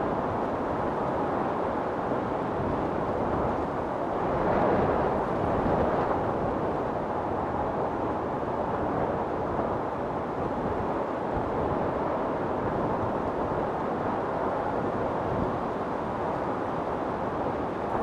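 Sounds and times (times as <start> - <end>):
wind storm rushing: 2.5 - 13.7.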